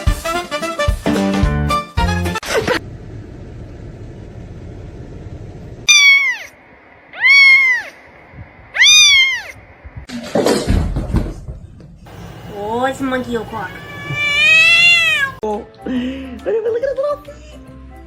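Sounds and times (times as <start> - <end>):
cat meowing: 5.9 - 8.0, 8.7 - 9.6, 13.6 - 15.4.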